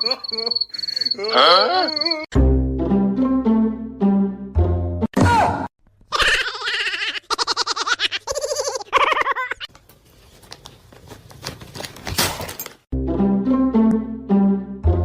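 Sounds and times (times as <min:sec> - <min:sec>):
person crying out in bursts: 0:01.2 - 0:02.3
music: 0:02.3 - 0:05.1, 0:12.9 - 0:15.0
rustling: 0:09.7 - 0:12.8.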